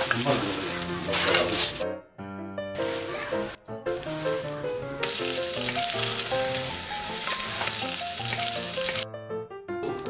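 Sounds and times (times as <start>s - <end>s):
beef sizzling in hot oil: 0.0s - 1.8s, 4.1s - 9.0s.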